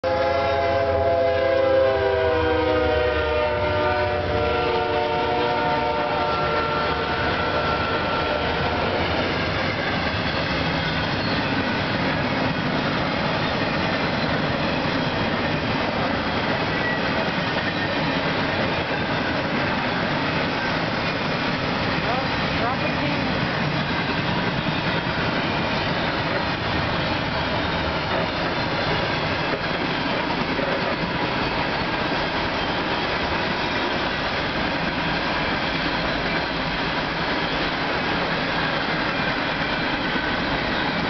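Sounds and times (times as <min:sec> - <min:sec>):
train horn: 0:00.0 - 0:09.3
freight cars rumbling over rails: 0:00.9 - 0:41.0.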